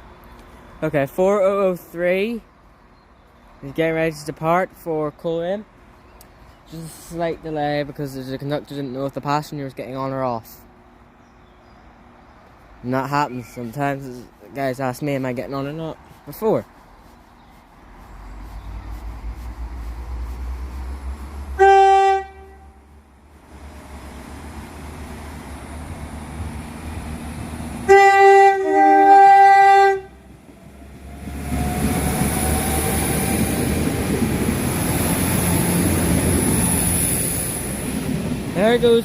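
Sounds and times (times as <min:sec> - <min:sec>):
train engine whine and rumble: 0:18.0 - 0:39.0
train horn: 0:21.6 - 0:22.9, 0:27.8 - 0:30.3.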